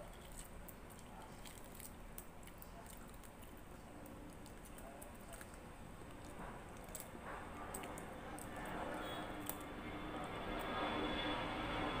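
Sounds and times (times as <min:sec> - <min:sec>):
person chewing food: 0:00.0 - 0:09.6.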